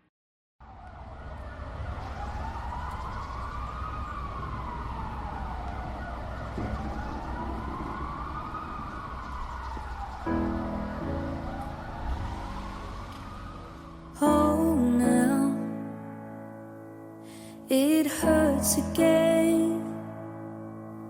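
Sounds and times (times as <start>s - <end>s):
siren wailing: 0.6s - 15.6s.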